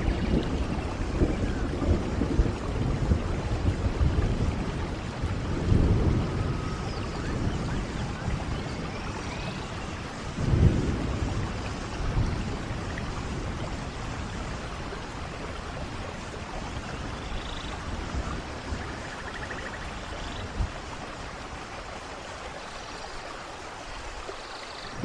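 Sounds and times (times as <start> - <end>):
steady rain hissing: 0.0 - 25.0.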